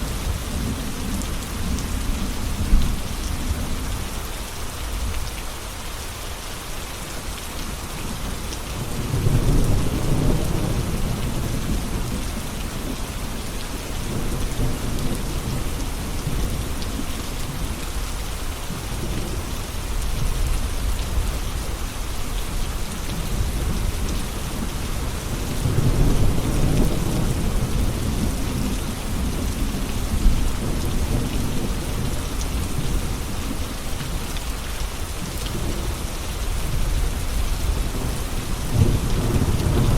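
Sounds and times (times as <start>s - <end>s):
heavy rain falling: 0.0s - 39.9s
thunder rumbling: 37.0s - 39.9s.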